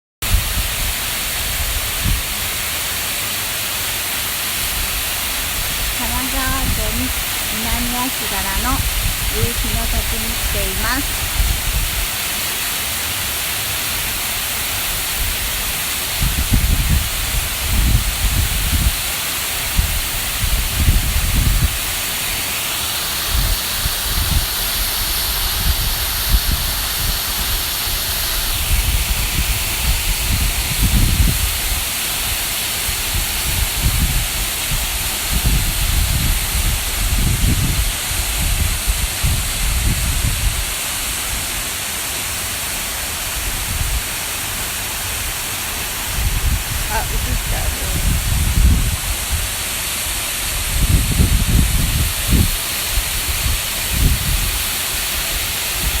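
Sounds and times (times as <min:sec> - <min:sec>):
wind buffeting microphone: 0:00.2 - 0:02.5, 0:04.8 - 0:12.1, 0:14.9 - 0:22.0, 0:23.3 - 0:40.8, 0:45.9 - 0:54.7
waterfall rushing: 0:00.2 - 0:56.0.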